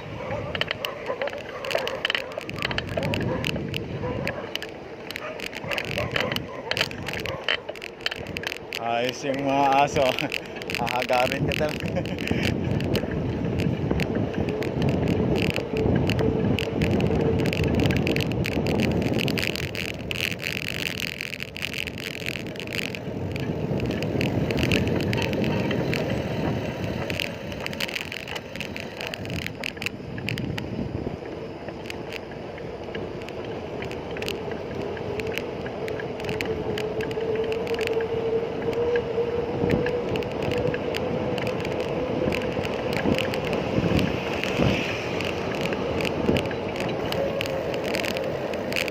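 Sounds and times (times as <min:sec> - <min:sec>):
bicycle clicks and rattles: 0:00.0 - 0:48.9
bicycle tyre road noise: 0:00.0 - 0:48.9
wind buffeting microphone: 0:00.0 - 0:48.9.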